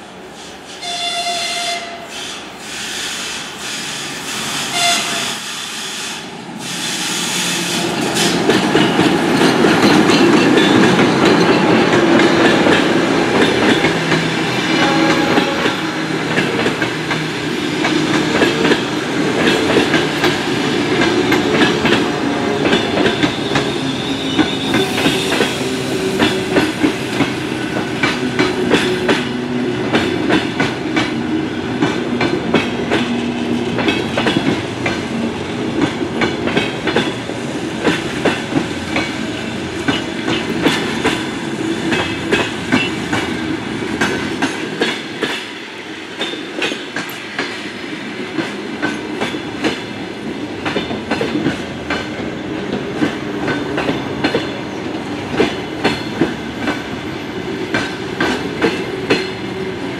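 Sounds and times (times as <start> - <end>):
train running past: 0.0 - 59.9
locomotive horn: 0.8 - 2.2, 4.6 - 5.4, 14.6 - 16.1.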